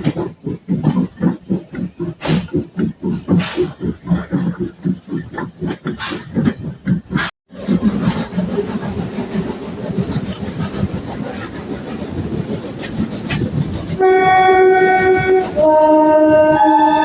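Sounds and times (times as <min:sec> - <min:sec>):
train running on rails: 0:00.0 - 0:17.0
train horn chords: 0:14.0 - 0:17.0.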